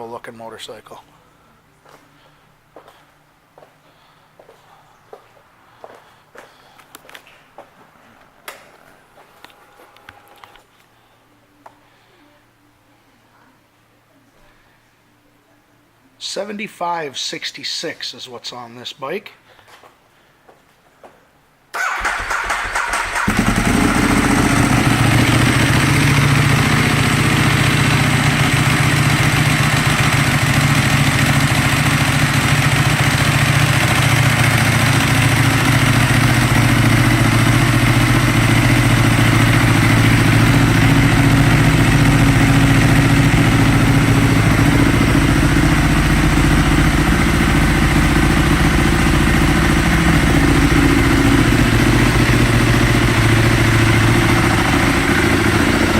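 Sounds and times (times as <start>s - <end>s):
motorcycle starter cranking: 21.8s - 25.8s
motorcycle engine idling: 21.9s - 55.9s.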